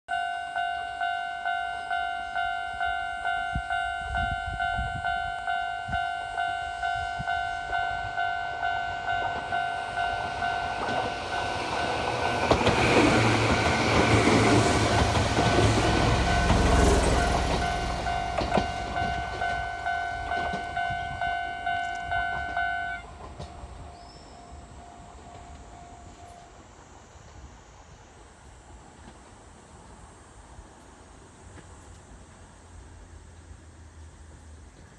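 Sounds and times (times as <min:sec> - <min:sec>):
level crossing warning bell: 0:00.1 - 0:26.7
train wheels rumbling and clacking: 0:02.8 - 0:27.6.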